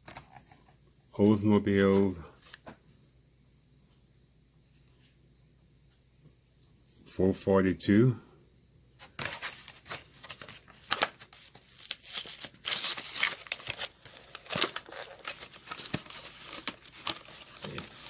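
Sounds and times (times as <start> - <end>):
plastic packaging crinkling: 9.1 - 18.0
package tearing: 9.2 - 18.0.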